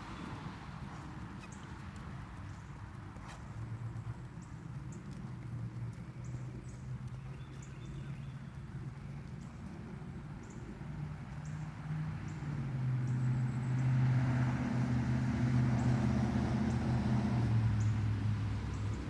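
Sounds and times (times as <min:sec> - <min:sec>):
engine humming: 0:11.3 - 0:19.0.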